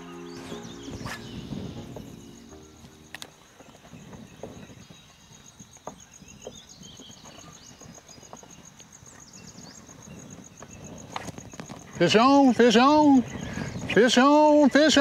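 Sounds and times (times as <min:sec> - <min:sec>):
short chirps: 0:00.0 - 0:02.3.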